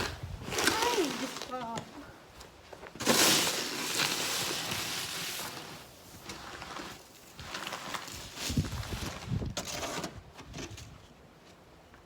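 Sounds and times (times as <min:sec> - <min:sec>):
snow shovel scraping snow: 0:00.0 - 0:01.8, 0:03.0 - 0:10.1.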